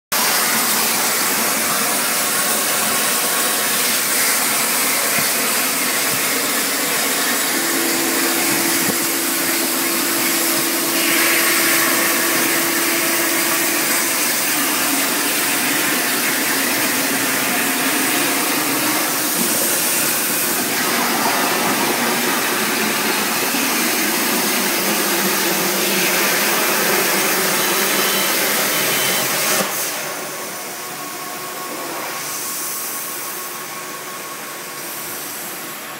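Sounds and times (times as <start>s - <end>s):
steady hum: 0.2s - 25.8s
plasma cutter hissing: 0.2s - 30.5s.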